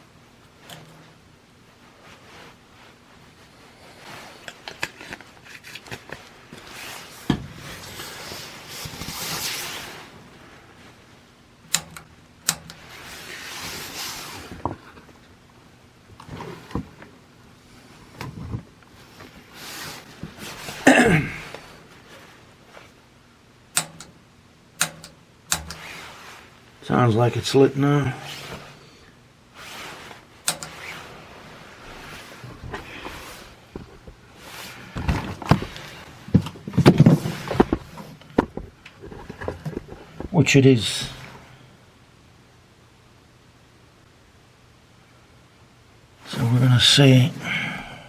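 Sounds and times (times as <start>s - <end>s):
soft gas rushing: 0.0s - 42.2s, 46.2s - 48.0s
clicks and knocks on heater controls: 0.6s - 1.1s, 7.2s - 8.1s, 11.7s - 13.0s, 23.7s - 24.2s, 24.8s - 26.1s, 30.4s - 31.0s, 34.9s - 40.4s.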